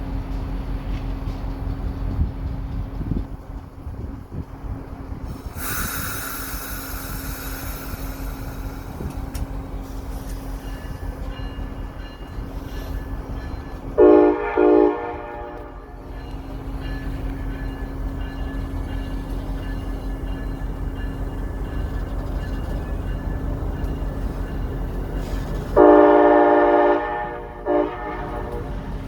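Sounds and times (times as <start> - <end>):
air hiss: 5.2 - 10.6
train horn blasts: 14.0 - 16.1, 25.8 - 29.0.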